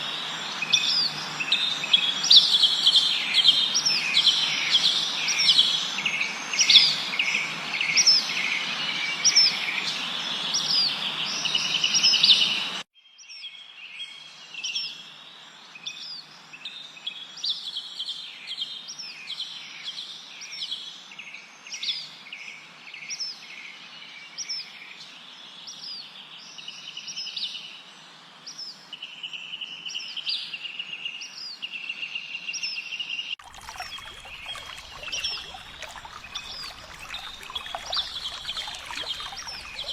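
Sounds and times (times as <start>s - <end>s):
songbirds chirping and trilling: 33.2s - 39.9s.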